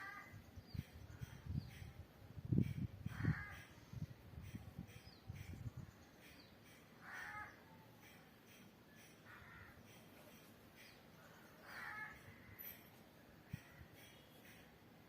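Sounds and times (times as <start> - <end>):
crow cawing: 3.1 - 3.7, 7.0 - 7.7, 9.2 - 9.9, 11.3 - 12.6.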